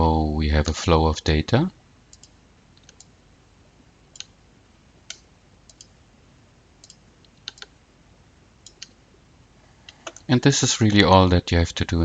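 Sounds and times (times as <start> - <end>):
faint steady hiss: 0.0 - 12.0
computer mouse clicking: 2.1 - 3.2, 4.1 - 4.4, 5.0 - 6.0, 6.8 - 7.8, 8.6 - 9.0, 9.9 - 10.3.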